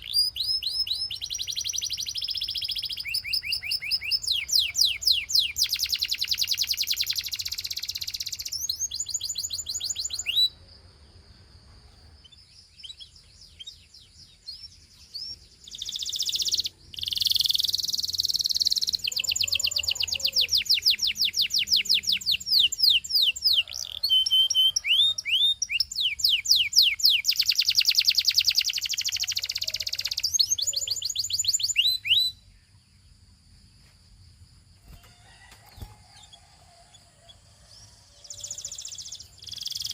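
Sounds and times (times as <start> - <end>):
canary singing trills: 0.0 - 10.6, 12.0 - 33.4, 34.9 - 39.9.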